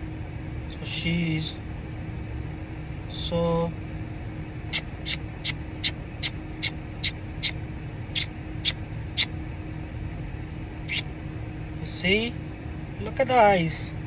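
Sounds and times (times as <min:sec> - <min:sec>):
low hum inside car: 0:00.0 - 0:14.0
parrot chirping: 0:04.7 - 0:07.6, 0:08.2 - 0:09.3.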